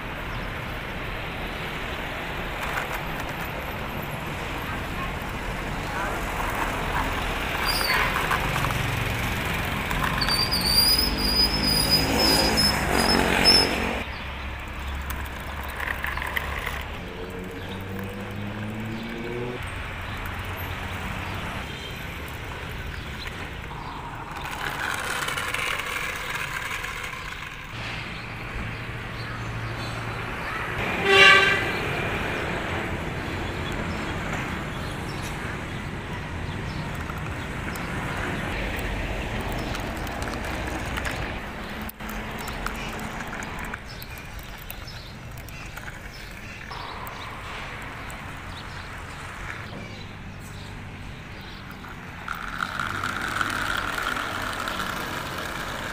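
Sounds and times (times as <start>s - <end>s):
vehicle engine driving: 0.0s - 55.9s
car horn toot: 30.8s - 31.8s.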